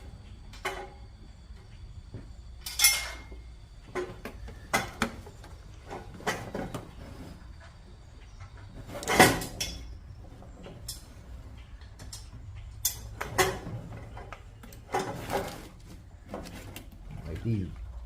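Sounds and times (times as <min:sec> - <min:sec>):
metal tools clinking and clanking: 0:02.6 - 0:05.0, 0:08.4 - 0:10.0, 0:10.6 - 0:15.7.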